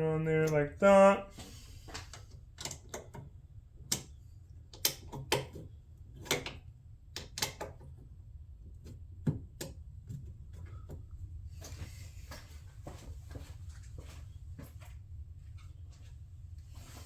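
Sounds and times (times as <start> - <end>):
clicks of screws and plastic parts: 1.9 - 3.3, 3.9 - 7.9.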